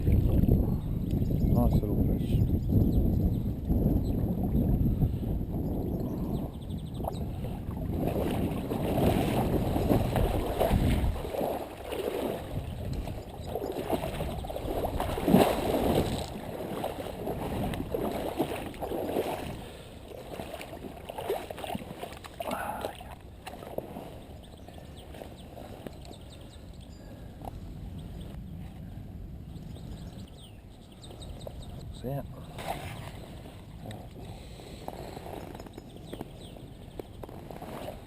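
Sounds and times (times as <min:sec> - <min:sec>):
water splashing and sloshing: 0:00.0 - 0:00.8, 0:06.9 - 0:29.2, 0:32.4 - 0:38.0.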